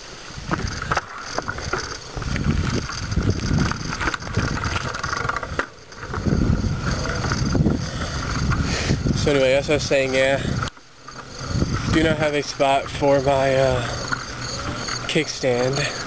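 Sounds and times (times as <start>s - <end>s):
wind rumbling on microphone: 0.2s - 15.1s
bicycle clicks: 0.4s - 16.0s.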